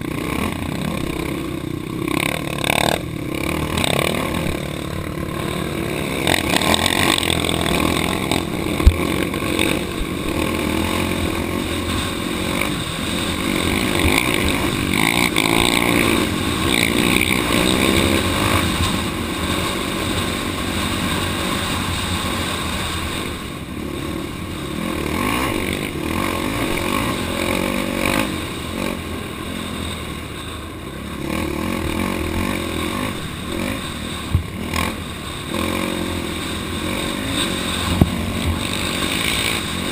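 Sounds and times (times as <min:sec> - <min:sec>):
off-road vehicle engine: 0:00.0 - 0:39.9.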